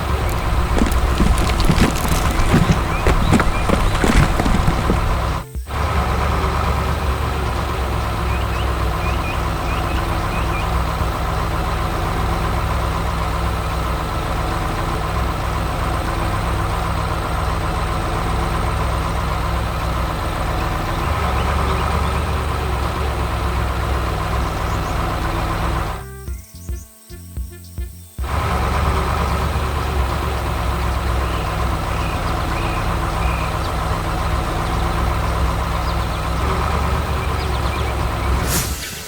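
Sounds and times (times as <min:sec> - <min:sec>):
heavy diesel engine running: 0:28.3 - 0:39.0.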